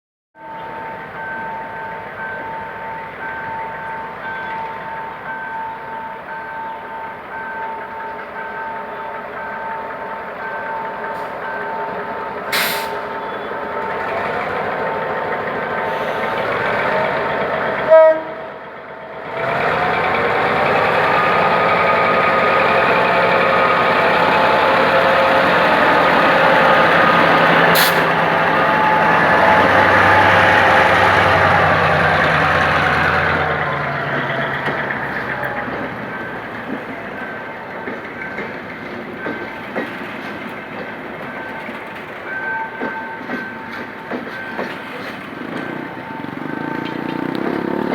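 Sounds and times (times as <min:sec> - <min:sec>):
diesel locomotive engine: 0:00.5 - 0:47.9
air hissing: 0:12.5 - 0:13.0, 0:27.7 - 0:28.2
loud horn blast: 0:17.9 - 0:18.5.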